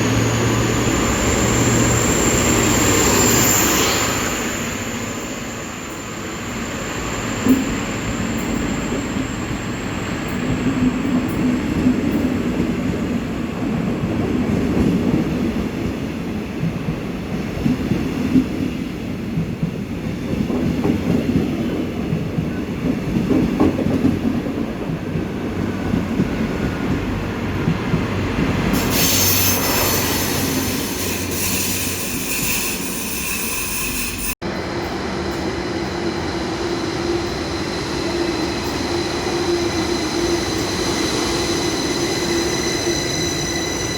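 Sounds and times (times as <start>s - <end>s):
train rumbling on rails: 0.0s - 43.9s
metallic wheel squeal: 28.7s - 34.4s, 36.9s - 43.9s.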